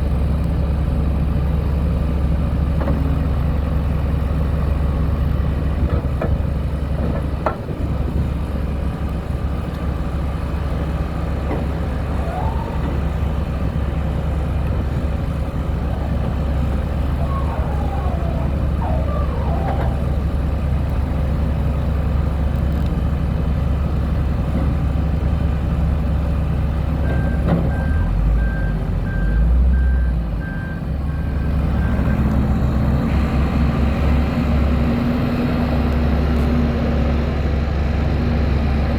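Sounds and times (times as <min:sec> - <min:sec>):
diesel engine running: 0:00.0 - 0:38.9
short squeaks: 0:16.8 - 0:20.3
reversing alarm beeping: 0:27.0 - 0:32.0.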